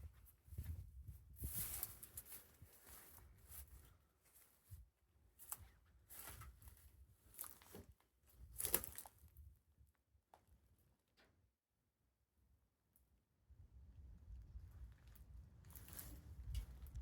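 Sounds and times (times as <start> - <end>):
wind gusting on microphone: 0.0 - 2.0
footsteps through a field: 0.0 - 8.0, 8.6 - 9.2.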